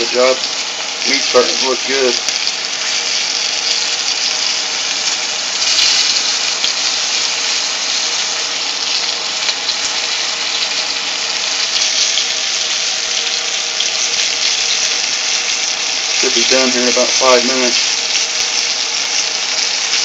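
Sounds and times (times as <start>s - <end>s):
meat frying in grease: 0.0s - 20.0s.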